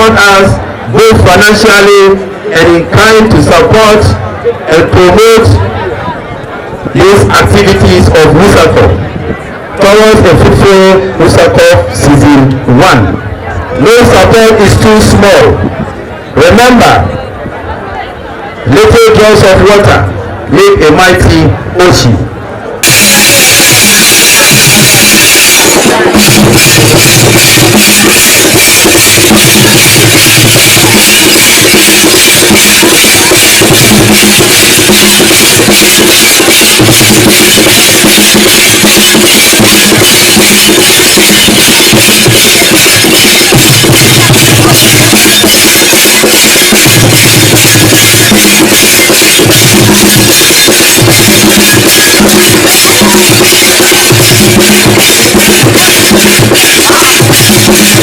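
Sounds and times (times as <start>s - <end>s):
rapid drum strikes: 0.0s - 4.2s, 13.9s - 15.8s, 22.8s - 58.0s.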